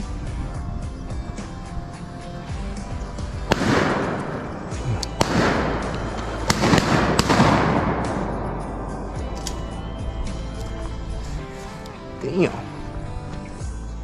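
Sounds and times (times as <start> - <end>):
background music: 0.0 - 14.0
shotgun blasts with rolling echo: 2.3 - 10.8.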